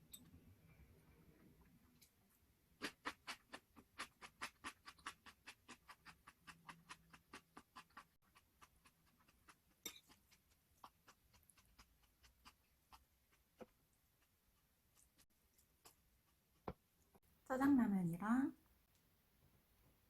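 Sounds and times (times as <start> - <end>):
chewing crispy fried chicken: 2.8 - 16.6.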